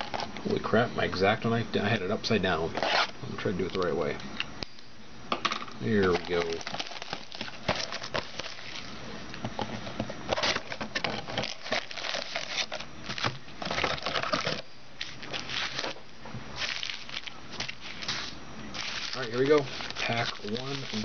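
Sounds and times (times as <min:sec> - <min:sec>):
plastic wrap crinkling and tearing: 0:06.0 - 0:08.9, 0:10.4 - 0:16.0, 0:16.6 - 0:21.0.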